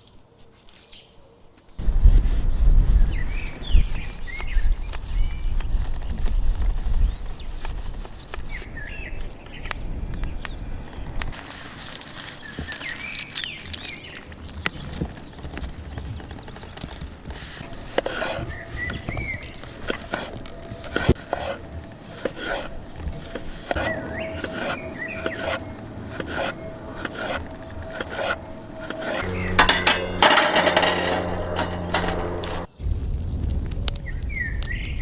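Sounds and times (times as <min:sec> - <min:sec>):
birds chirping: 0:01.8 - 0:32.8
cookware clinking and scraping: 0:17.4 - 0:32.7
low hum: 0:17.6 - 0:32.7.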